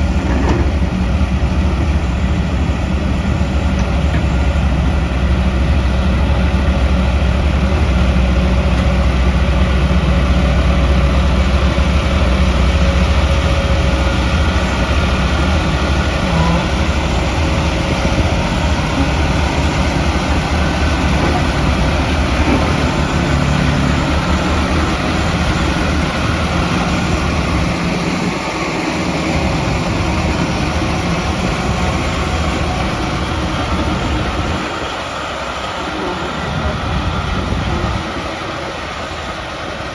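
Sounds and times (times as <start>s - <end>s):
diesel construction machinery humming: 0.0s - 39.9s.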